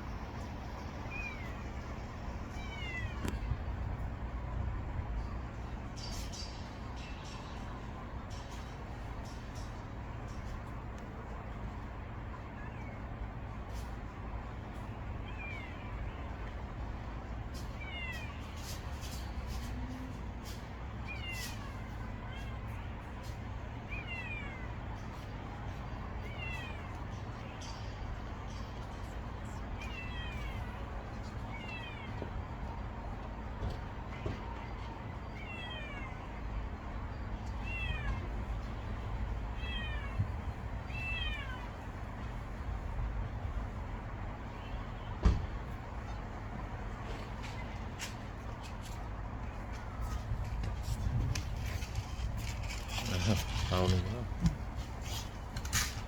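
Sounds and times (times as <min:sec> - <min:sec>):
kitten meowing: 0:39.6 - 0:40.3.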